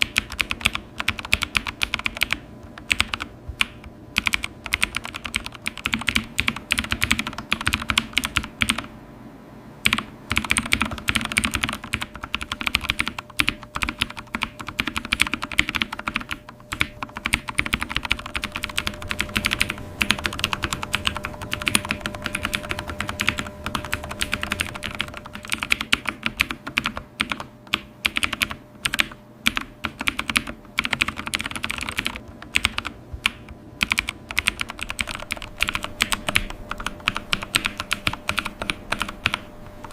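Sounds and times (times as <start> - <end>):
fast typing on keyboard: 0.0 - 8.9, 9.8 - 39.9.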